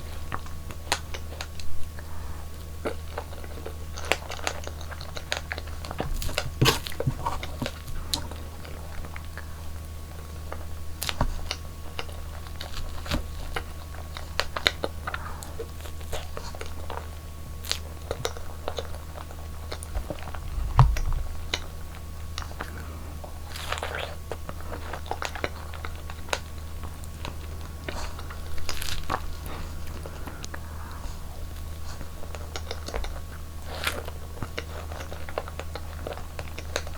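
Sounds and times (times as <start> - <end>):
chewing strawberries and cake: 0.0 - 36.9
steady low hum: 0.0 - 36.9
bump: 20.4 - 21.6.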